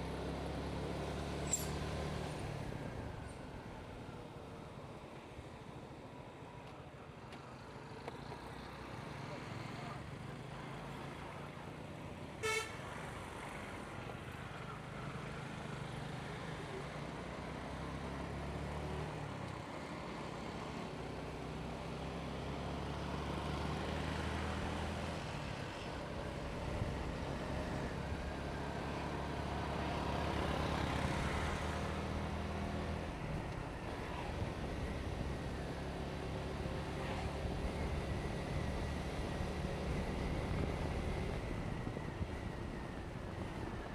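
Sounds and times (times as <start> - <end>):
road and wind noise: 0.0 - 43.9
short horn beep: 12.4 - 12.8.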